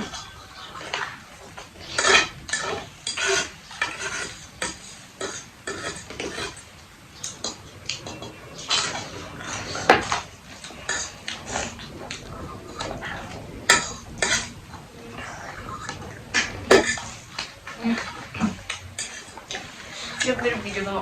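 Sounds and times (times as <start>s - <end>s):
cutlery clinking on plates: 9.9s - 11.0s, 16.7s - 17.0s.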